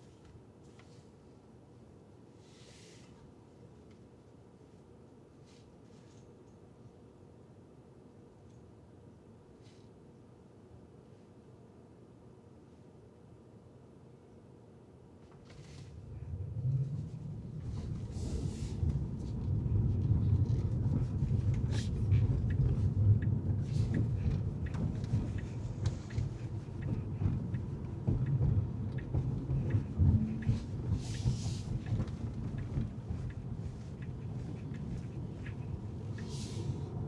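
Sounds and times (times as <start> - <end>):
car road and engine rumble: 15.4 - 37.0
passing traffic hiss: 35.4 - 37.0.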